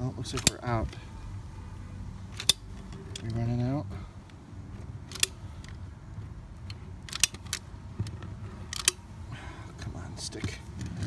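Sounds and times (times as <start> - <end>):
caulking gun clicking: 0.4 - 0.6, 2.3 - 3.4, 5.0 - 5.8, 6.7 - 7.7, 8.7 - 9.1.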